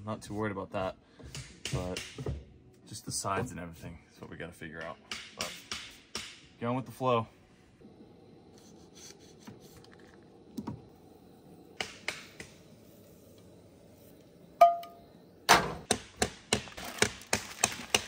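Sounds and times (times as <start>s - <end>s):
camp stove burner hiss: 5.2s - 18.0s.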